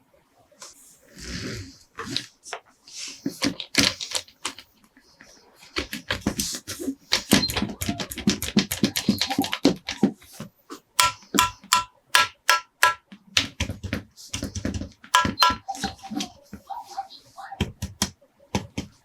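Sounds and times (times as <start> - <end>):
plastic toys clicking: 3.4 - 4.7, 5.7 - 10.3, 11.0 - 16.2
clicks with short ringing tone: 11.0 - 13.0, 15.2 - 15.7.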